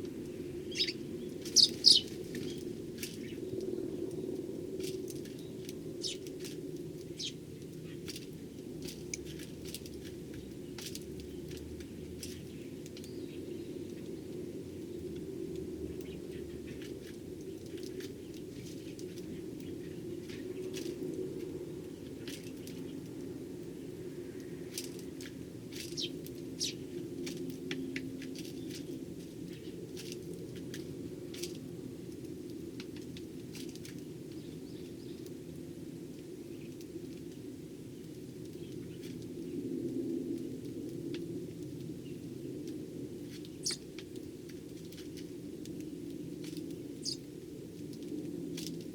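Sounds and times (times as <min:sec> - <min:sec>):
sparrows chirping: 0:00.6 - 0:03.4, 0:05.2 - 0:14.3, 0:15.9 - 0:20.8, 0:25.7 - 0:27.0, 0:33.9 - 0:35.3, 0:43.5 - 0:43.9, 0:46.2 - 0:47.3.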